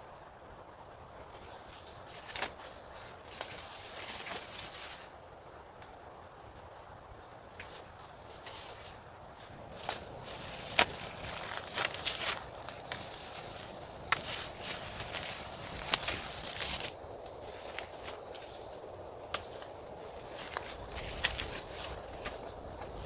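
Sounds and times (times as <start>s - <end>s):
insect trilling: 8.8s - 23.0s.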